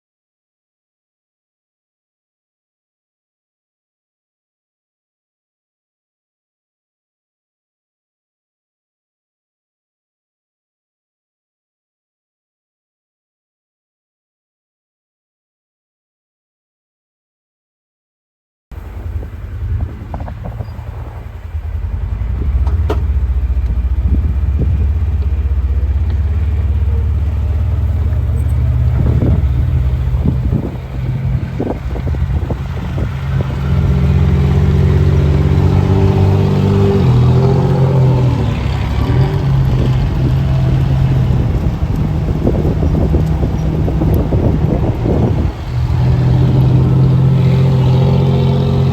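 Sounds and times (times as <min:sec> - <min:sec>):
car engine running: 0:18.8 - 0:48.9.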